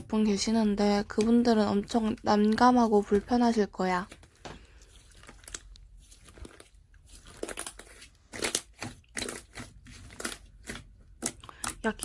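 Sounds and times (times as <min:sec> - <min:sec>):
crinkling crunching handling: 0:01.4 - 0:12.0.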